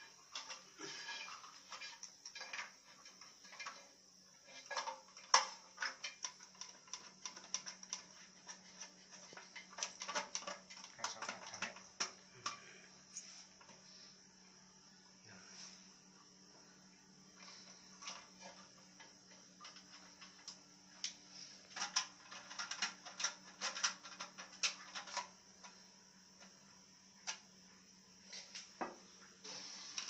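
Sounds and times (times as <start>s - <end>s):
faint steady hum: 0.0s - 30.0s
plastic parts clicking and knocking: 4.5s - 12.6s, 18.0s - 25.8s.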